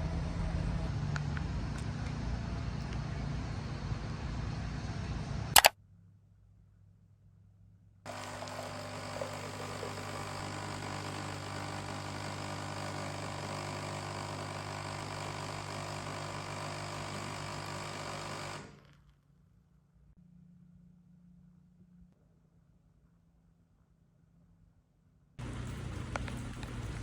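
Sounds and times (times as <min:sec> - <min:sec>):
small electric motor humming: 0:08.1 - 0:19.0, 0:25.4 - 0:27.0.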